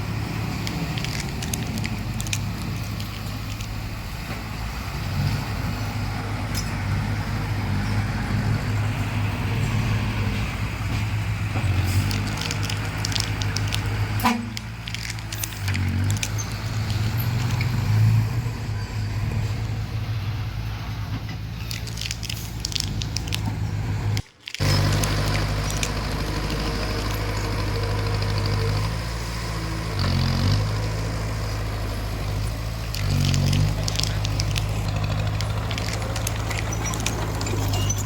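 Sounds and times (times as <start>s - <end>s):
bulldozer engine hum: 0.0s - 38.0s
clicks and clanks: 0.5s - 4.4s, 10.9s - 17.8s, 21.1s - 23.6s, 24.2s - 27.6s, 32.8s - 38.0s.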